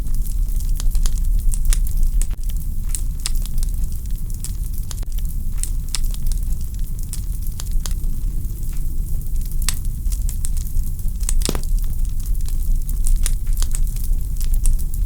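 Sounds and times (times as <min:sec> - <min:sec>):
log fire crackling: 0:11.4 - 0:12.0.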